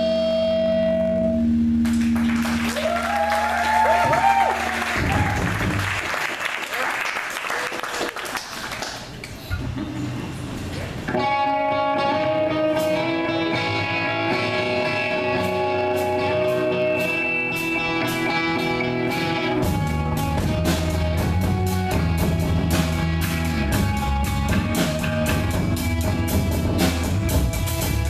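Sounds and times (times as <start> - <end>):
electric guitar sustained notes: 0.0 - 6.0, 11.1 - 28.0
heavy low bass: 0.0 - 6.2, 18.6 - 28.0
live rock band playing: 11.1 - 28.0.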